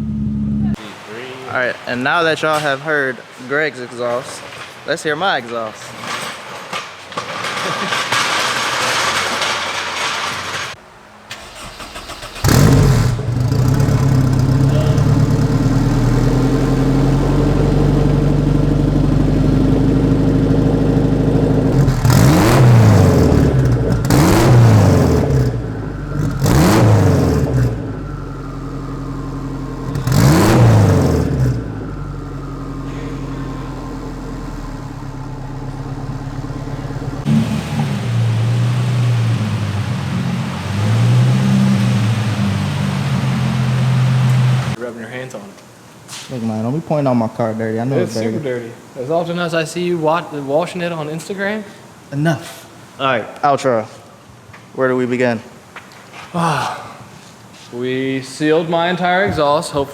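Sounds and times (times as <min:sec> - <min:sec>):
car engine revving: 0:00.0 - 0:00.9, 0:11.3 - 0:44.8
car engine starting and idling: 0:00.0 - 0:01.1, 0:07.9 - 0:44.8.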